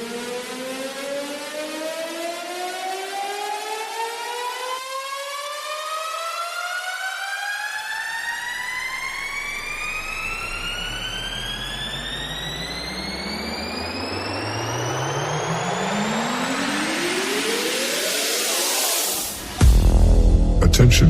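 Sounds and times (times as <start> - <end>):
rising test tone sweep: 8.2 - 19.6
deep bass tone: 19.5 - 21.0.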